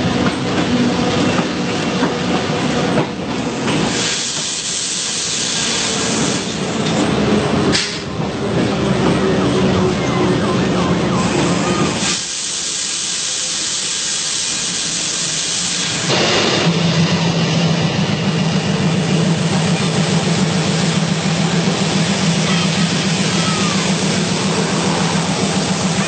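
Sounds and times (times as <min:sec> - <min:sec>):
train engine drone: 0:00.0 - 0:26.0
loud hiss: 0:03.8 - 0:06.6, 0:11.8 - 0:16.9.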